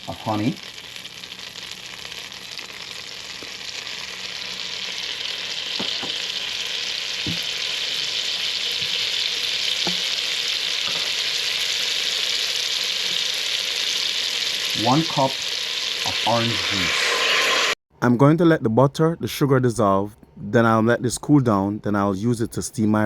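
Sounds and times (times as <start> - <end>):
butter and sugar sizzling in pot: 0.0 - 17.8.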